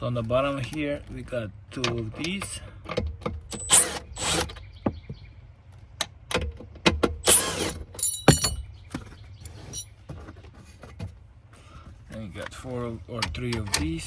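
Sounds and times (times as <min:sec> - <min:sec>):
tool clicks and knocks: 0:06.0 - 0:09.1
metallic clink: 0:07.2 - 0:08.7.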